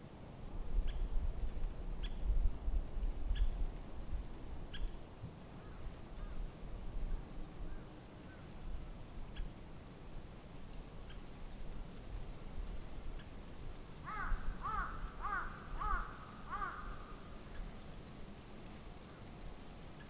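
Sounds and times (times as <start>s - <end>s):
wind rumble on microphone: 0.3s - 16.2s.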